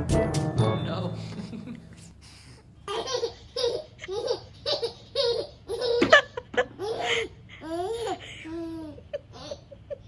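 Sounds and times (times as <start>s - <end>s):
baby laughing: 2.8s - 10.0s.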